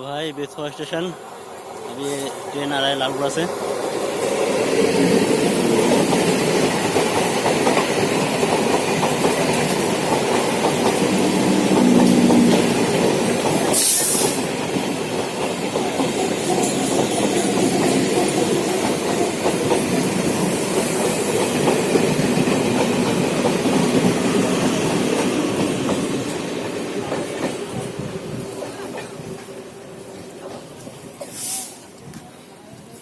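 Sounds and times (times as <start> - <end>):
train wheels clattering over rail joints: 5.0 - 31.5
short sharp hiss: 13.7 - 14.5, 31.2 - 31.9.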